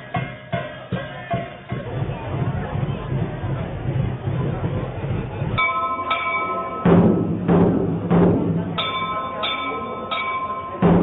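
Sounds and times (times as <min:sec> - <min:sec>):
ringing metal strikes: 0:00.0 - 0:02.6, 0:05.5 - 0:11.0
deep drum beats: 0:00.0 - 0:05.7, 0:06.8 - 0:09.6, 0:10.8 - 0:11.0.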